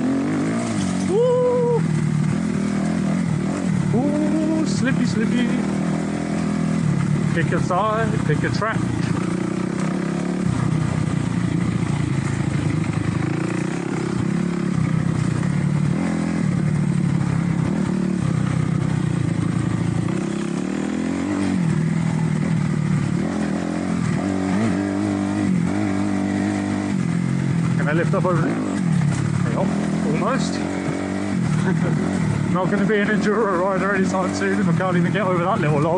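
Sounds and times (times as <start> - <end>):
motorcycle engine revving: 0.0 - 35.9.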